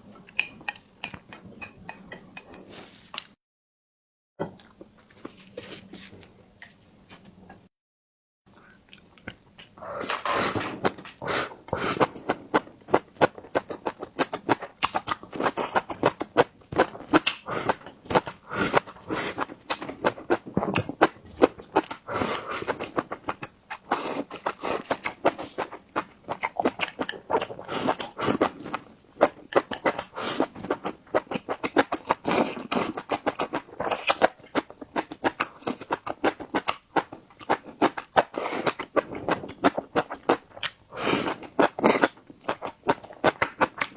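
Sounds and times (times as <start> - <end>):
wet chewing and lip smacking: 11.7 - 43.9.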